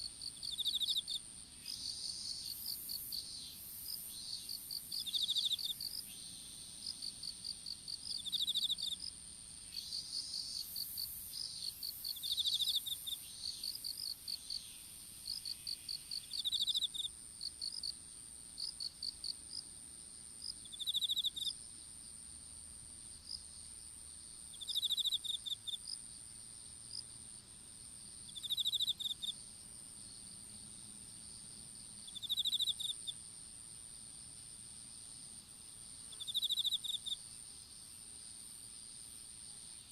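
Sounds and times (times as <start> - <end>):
insect rapid chirps: 0.0 - 18.0, 20.4 - 21.9, 22.5 - 39.9
insect high-pitched trill: 0.1 - 9.1, 9.7 - 17.1, 24.5 - 25.8, 28.3 - 29.4, 32.0 - 33.2, 36.1 - 37.2.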